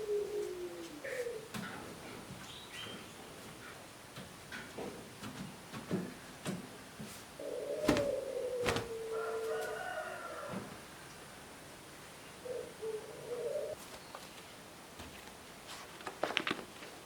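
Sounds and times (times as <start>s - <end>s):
rooster crowing: 8.8s - 11.1s.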